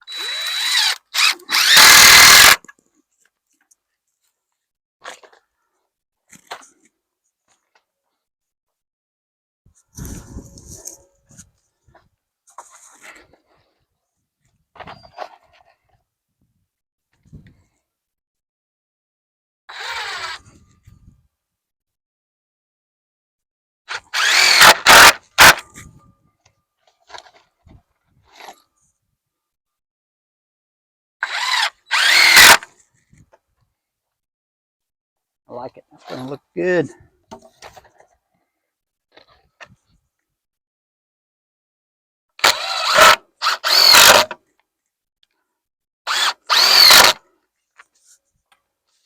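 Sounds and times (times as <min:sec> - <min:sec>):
power drill motor whirring: 0:00.0 - 0:02.7, 0:19.7 - 0:20.7, 0:23.9 - 0:25.6, 0:31.2 - 0:32.7, 0:42.4 - 0:44.4, 0:46.1 - 0:47.2.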